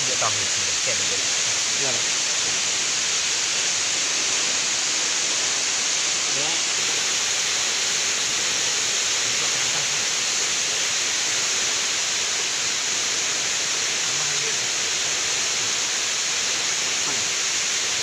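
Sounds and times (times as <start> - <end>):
waterfall rushing: 0.0 - 18.0
faint voice: 14.1 - 14.7.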